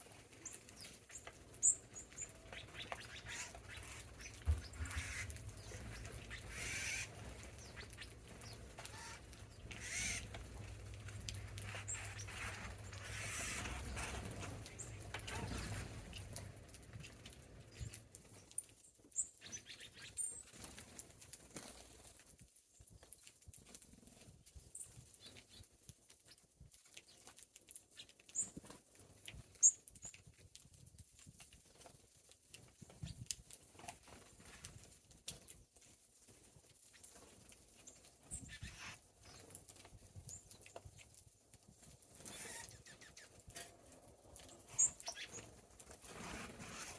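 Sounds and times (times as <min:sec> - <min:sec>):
small birds chirping: 0:00.0 - 0:20.7, 0:24.6 - 0:28.7, 0:36.8 - 0:46.9
wing flutters: 0:00.5 - 0:18.0, 0:41.8 - 0:46.9.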